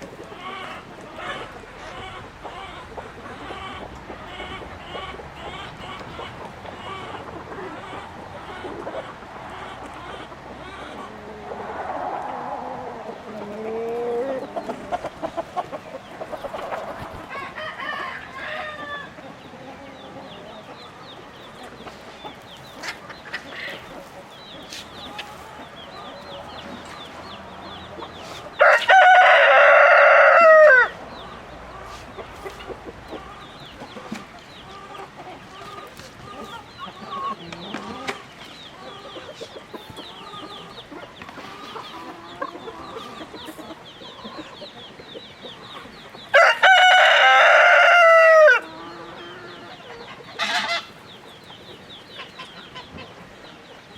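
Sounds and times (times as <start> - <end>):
chickens clucking: 0.0 - 53.9
rooster crowing: 28.6 - 30.9, 46.3 - 48.9.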